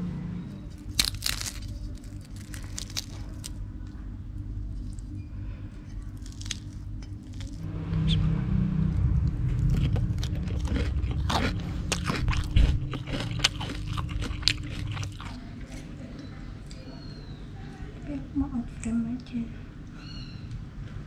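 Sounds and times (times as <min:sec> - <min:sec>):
person chewing crunchy food: 0:00.7 - 0:03.6, 0:04.6 - 0:07.7, 0:09.2 - 0:15.9.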